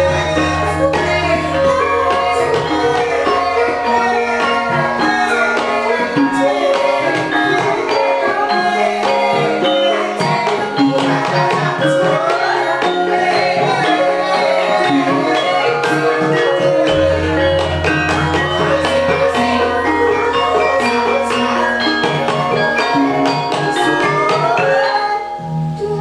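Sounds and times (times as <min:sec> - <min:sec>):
hand drum strokes: 0:00.0 - 0:25.1
gamelan ensemble playing: 0:00.0 - 0:26.0
gong tones: 0:14.9 - 0:25.9.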